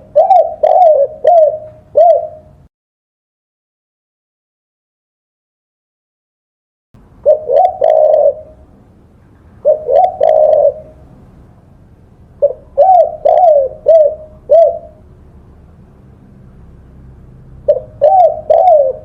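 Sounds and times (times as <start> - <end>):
dove cooing: 0.0 - 2.7, 7.2 - 8.7, 9.6 - 11.2, 12.4 - 15.1, 17.6 - 19.0.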